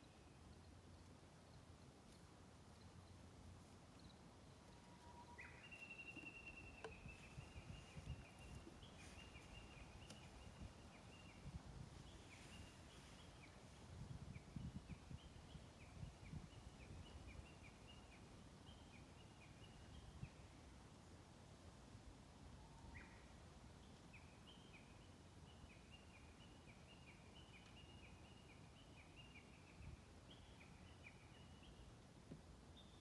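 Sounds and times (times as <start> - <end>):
bird singing faintly: 4.0 - 13.6.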